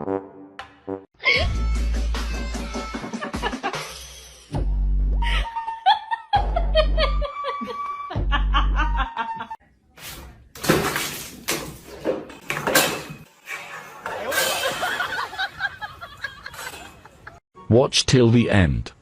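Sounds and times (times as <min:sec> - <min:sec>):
person laughing: 0:05.3 - 0:09.6.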